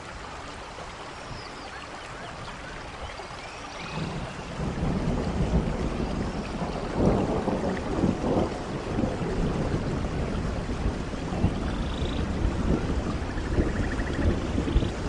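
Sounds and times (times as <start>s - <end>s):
steady rain: 0.0s - 15.0s
thunder rumbling: 4.0s - 15.0s.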